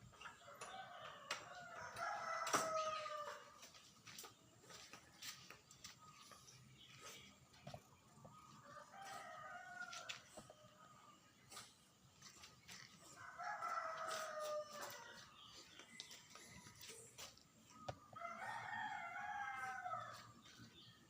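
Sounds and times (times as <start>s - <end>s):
rooster crowing: 13.2s - 15.2s, 18.1s - 20.2s.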